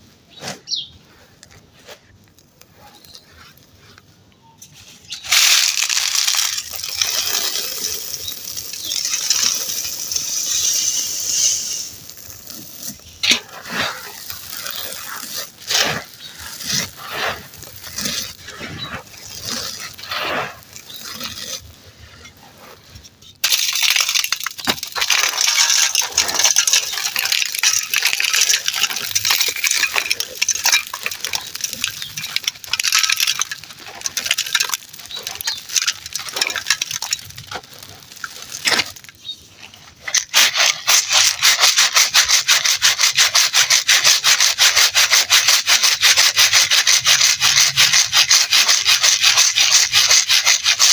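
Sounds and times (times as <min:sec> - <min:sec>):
gritty chunks being crushed: 0:04.9 - 0:22.1, 0:23.2 - 0:50.9.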